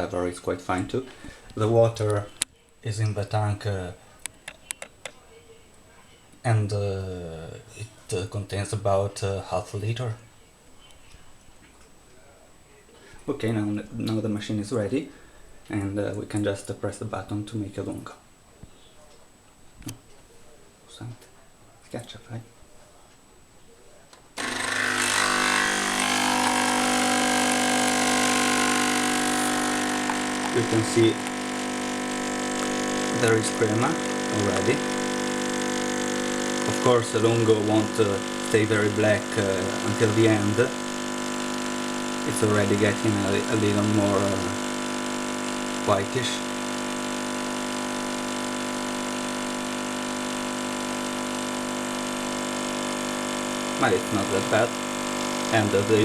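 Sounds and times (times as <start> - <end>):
coffee machine pump buzzing: 24.4 - 56.0.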